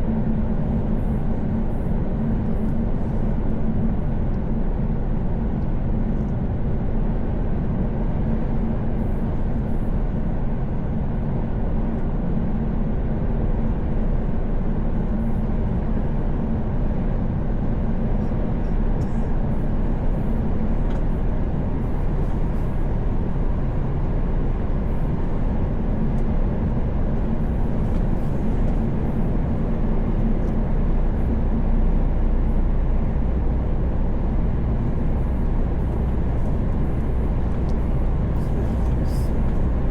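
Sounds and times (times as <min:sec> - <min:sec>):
low hum: 0:13.6 - 0:39.9
truck engine drone: 0:18.0 - 0:39.9.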